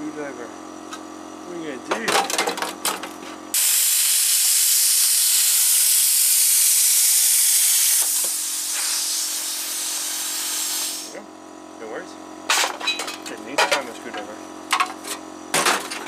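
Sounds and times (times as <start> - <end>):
plasma cutter hissing through metal: 3.6 - 11.2.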